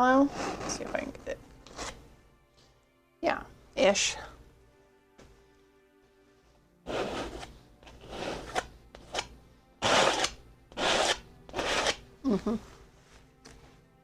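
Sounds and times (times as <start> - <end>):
card scraping paint on canvas: 0.3 - 2.0, 6.8 - 12.0.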